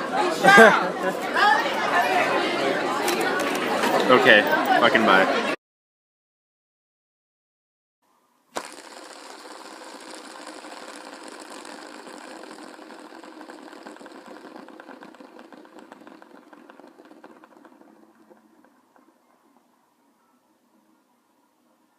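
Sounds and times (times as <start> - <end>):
fast mechanical buzzing rattle: 8.5 - 19.6.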